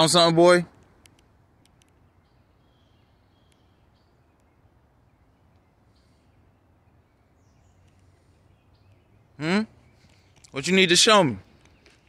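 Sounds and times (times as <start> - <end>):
faint high bird chirps: 1.8 - 10.8.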